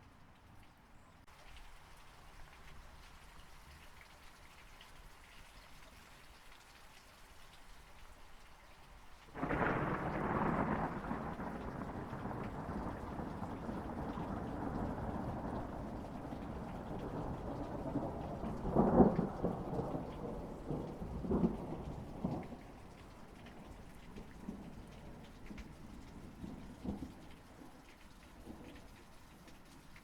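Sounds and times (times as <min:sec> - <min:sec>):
steady rain falling: 0:00.0 - 0:30.0
thunder clap and rumble: 0:09.4 - 0:27.4.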